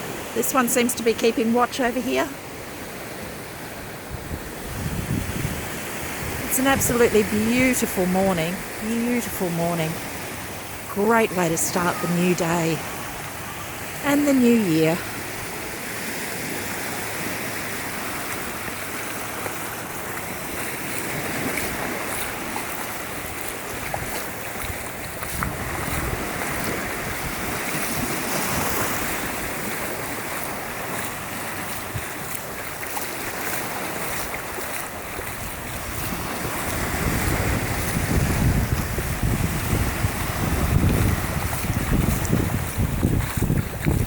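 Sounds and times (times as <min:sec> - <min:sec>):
ocean surf washing on beach: 0:00.0 - 0:44.0
wind buffeting microphone: 0:04.0 - 0:11.0, 0:18.0 - 0:44.0.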